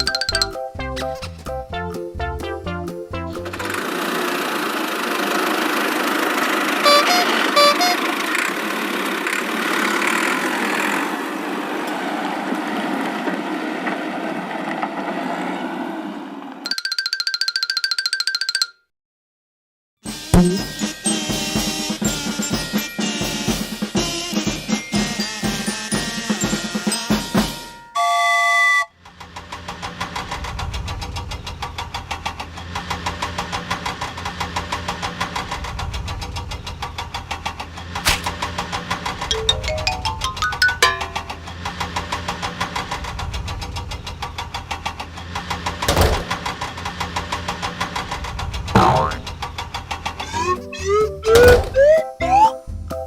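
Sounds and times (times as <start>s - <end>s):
drum kit music: 0.0s - 3.8s, 20.1s - 27.8s, 39.2s - 41.5s, 50.3s - 53.0s
cartoon vehicle engine running: 0.0s - 11.2s, 20.1s - 26.2s, 47.7s - 52.6s
short horn beeps: 6.8s - 8.2s, 27.8s - 28.9s.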